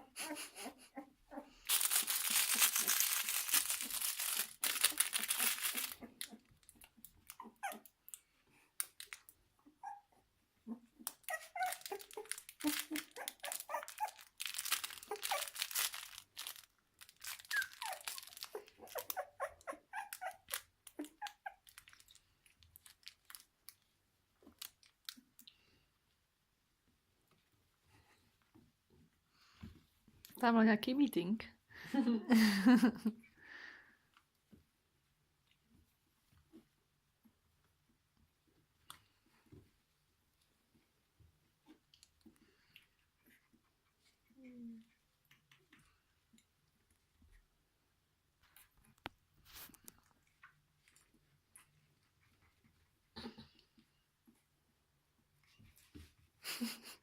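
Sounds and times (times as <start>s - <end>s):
loud crinkling rustle: 1.7s - 7.3s, 11.3s - 19.2s, 20.0s - 23.8s
puppies squeaking and whimpering: 7.2s - 8.0s, 9.6s - 15.9s, 17.3s - 22.0s.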